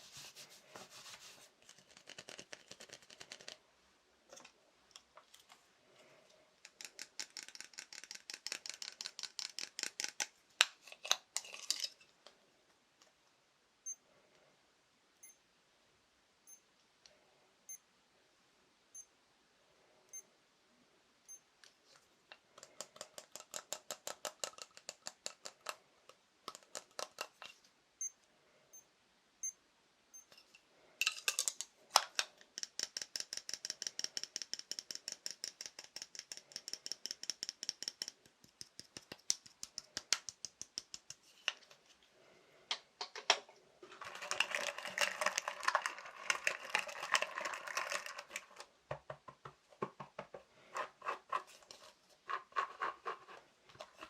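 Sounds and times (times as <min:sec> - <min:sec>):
fingertip tapping on small objects: 0:06.6 - 0:10.8, 0:22.3 - 0:25.8, 0:26.4 - 0:27.4, 0:31.0 - 0:41.3.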